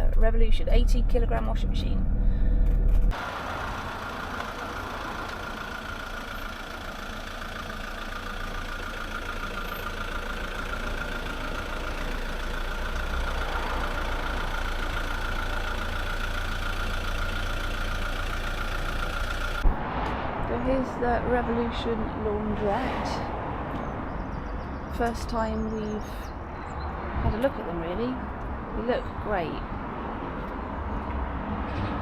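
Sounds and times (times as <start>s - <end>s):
vehicle engine idling: 0.0s - 19.7s.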